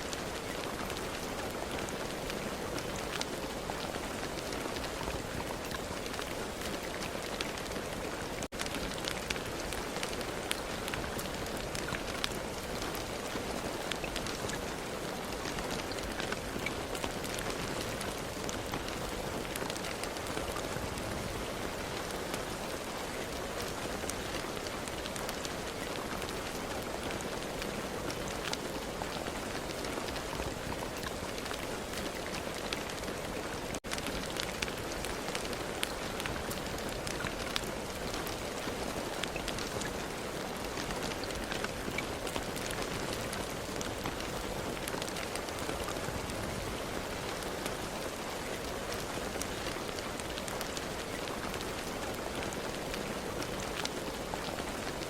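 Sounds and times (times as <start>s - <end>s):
raindrops ticking on surface: 0.0s - 55.0s
steady rain falling: 0.0s - 55.0s.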